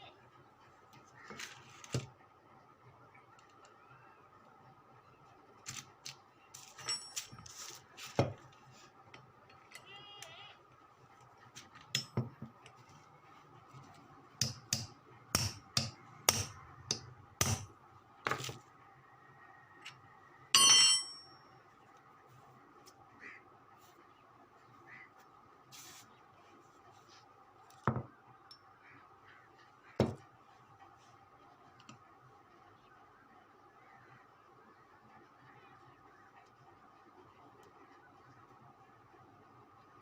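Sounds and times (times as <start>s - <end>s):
metal tools tapping and clinking: 6.6s - 7.5s, 20.6s - 21.4s
ringing metal clink: 6.8s - 7.4s, 20.6s - 21.4s.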